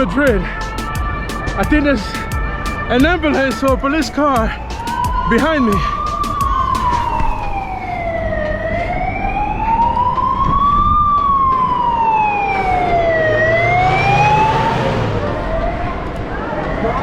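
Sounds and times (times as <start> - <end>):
emergency siren wailing: 0.0 - 17.0.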